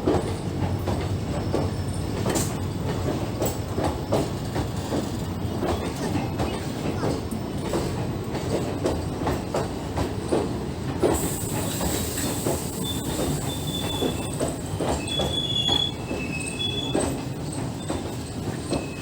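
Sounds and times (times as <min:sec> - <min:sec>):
train wheels rumbling on rail: 0:00.0 - 0:19.0
high wheel squeals: 0:11.6 - 0:17.2, 0:17.8 - 0:19.0.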